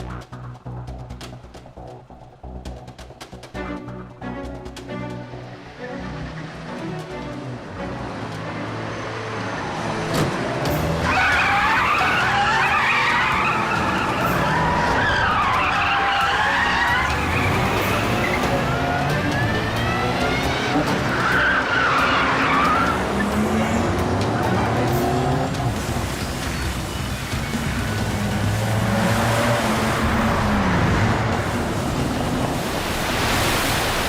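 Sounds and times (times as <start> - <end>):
car engines running: 0.0 - 34.0
tyres squealing: 10.1 - 30.8.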